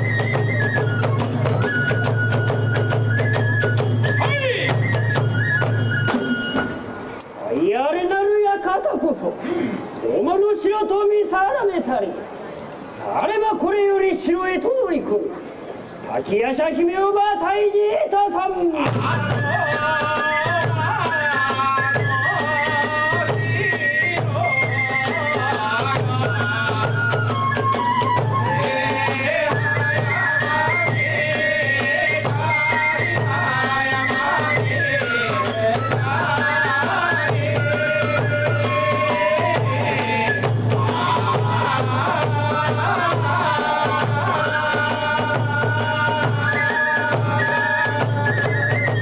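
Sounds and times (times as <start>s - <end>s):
bamboo flute melody: 0.0s - 7.2s, 18.9s - 49.0s
fast drum beats: 18.8s - 49.0s.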